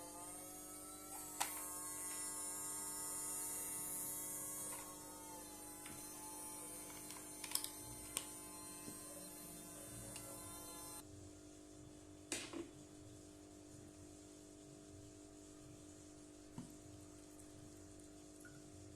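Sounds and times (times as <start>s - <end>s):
small electric motor humming: 0.0s - 11.1s.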